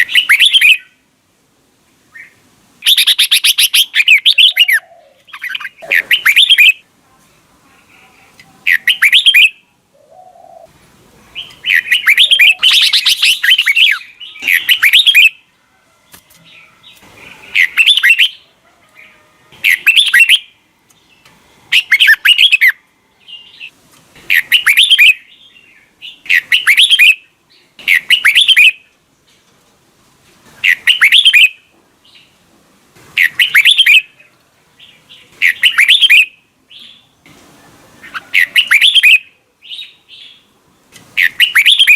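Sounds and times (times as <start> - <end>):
bulbul singing: 0.0 - 1.0, 2.1 - 6.9, 7.8 - 10.7, 11.3 - 15.5, 16.2 - 18.5, 19.5 - 23.7, 24.3 - 28.9, 30.6 - 32.4, 33.2 - 34.2, 34.8 - 37.2, 38.0 - 40.6, 41.2 - 41.9.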